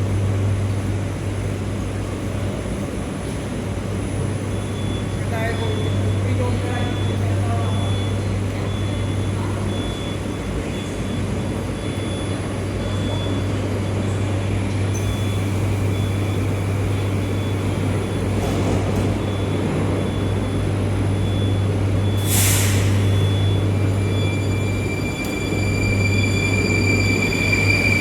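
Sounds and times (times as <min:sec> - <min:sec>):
train low hum: 0:00.0 - 0:28.0
air brake hissing: 0:22.1 - 0:23.4.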